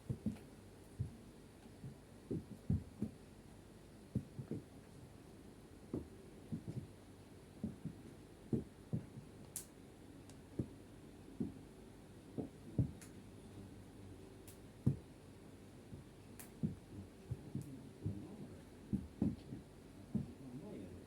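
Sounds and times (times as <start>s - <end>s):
soft dull thuds: 0.0s - 1.2s, 1.8s - 3.2s, 4.1s - 4.7s, 5.9s - 7.0s, 7.6s - 9.4s, 10.6s - 10.8s, 11.4s - 11.6s, 12.3s - 13.1s, 14.8s - 15.1s, 15.9s - 20.8s.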